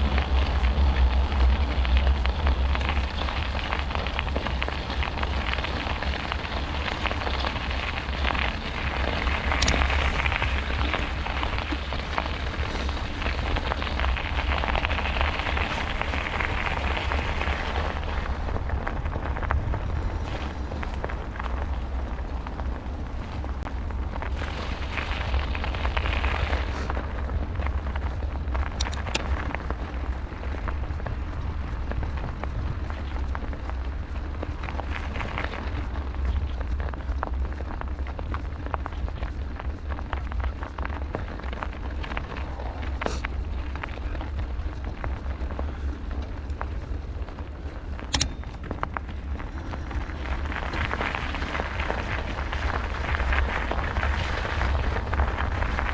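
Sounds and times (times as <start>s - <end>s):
bicycle tyres rushing: 0.0s - 55.9s
wind buffeting microphone: 0.0s - 55.9s
sharp clicks: 48.1s - 48.6s.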